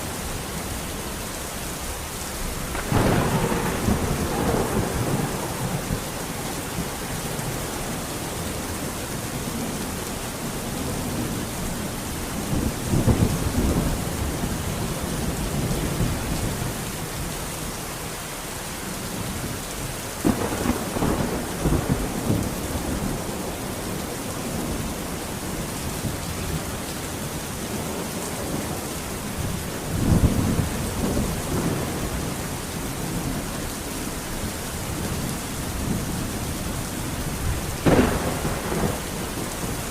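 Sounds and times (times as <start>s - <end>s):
steady rain: 0.0s - 39.9s
thunder rolling: 2.7s - 7.6s, 20.2s - 25.7s, 35.8s - 39.8s.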